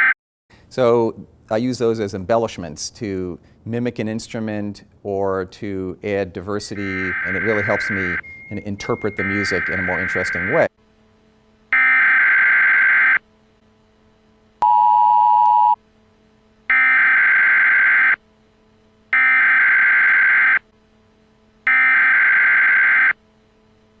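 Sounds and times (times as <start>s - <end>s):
long electronic alert beeps: 6.8s - 10.7s, 14.6s - 15.8s, 21.7s - 23.2s.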